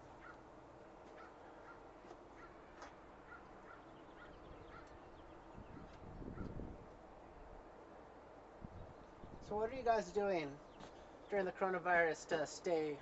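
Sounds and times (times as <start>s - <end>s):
short bird calls: 1.2s - 6.6s.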